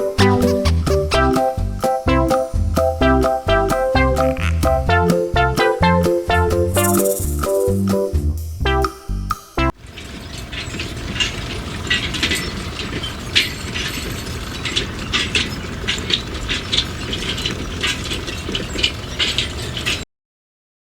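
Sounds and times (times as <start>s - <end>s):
small motor running: 6.7s - 7.8s
sharp clicks and ticks: 6.7s - 8.0s.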